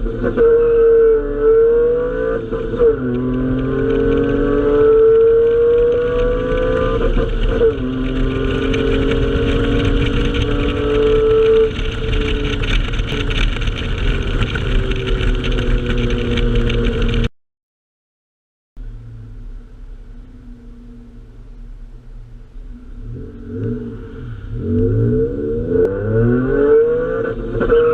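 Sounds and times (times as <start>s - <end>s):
car engine accelerating: 0.0s - 17.3s, 18.8s - 27.9s.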